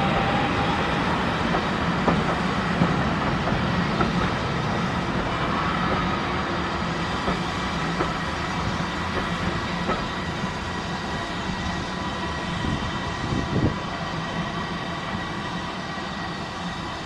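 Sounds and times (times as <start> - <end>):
steam train rumbling on rails: 0.0 - 17.0
train wheel clicks: 7.2 - 8.2, 8.9 - 10.2.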